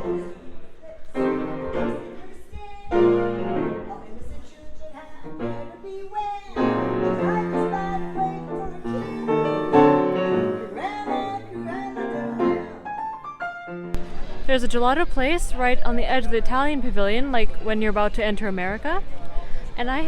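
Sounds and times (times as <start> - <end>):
solo piano music: 0.0 - 4.2, 6.5 - 14.5.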